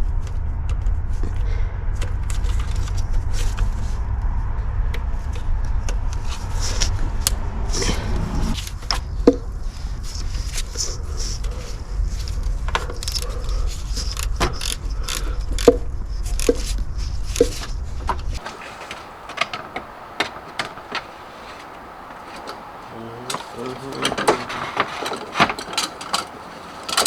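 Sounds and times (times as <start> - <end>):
steady low rumble: 0.0 - 23.7
metal tools clinking and scraping: 18.4 - 27.0.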